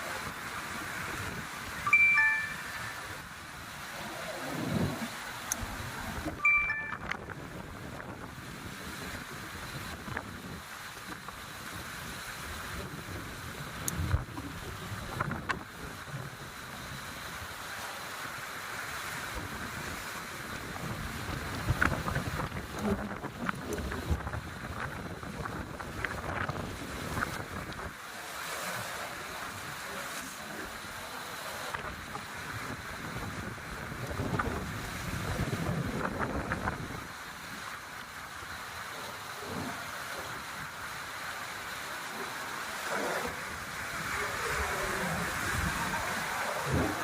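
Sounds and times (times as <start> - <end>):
sea washing: 0.0 - 47.0
wind on microphone: 4.0 - 17.4, 19.1 - 37.8, 42.8 - 47.0.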